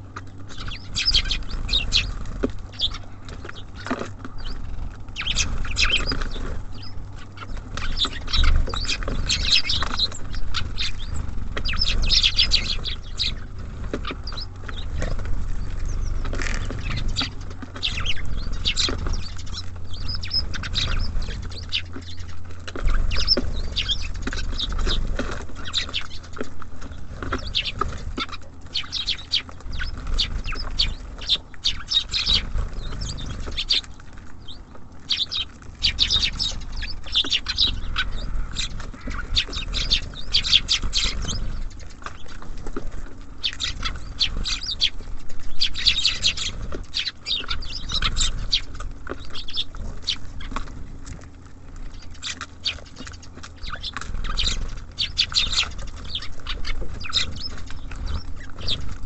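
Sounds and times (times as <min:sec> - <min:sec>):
songbirds chirping and twittering: 0:00.0 - 0:59.0.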